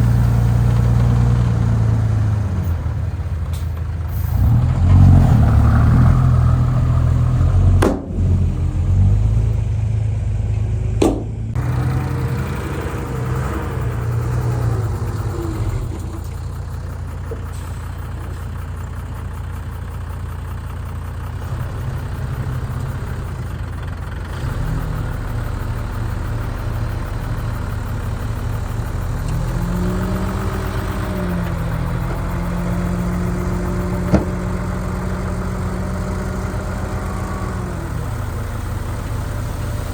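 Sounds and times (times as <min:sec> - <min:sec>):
heavy diesel engine running: 0:00.0 - 0:39.9
sharp knocks: 0:07.8 - 0:08.3, 0:11.0 - 0:11.4, 0:34.1 - 0:34.4.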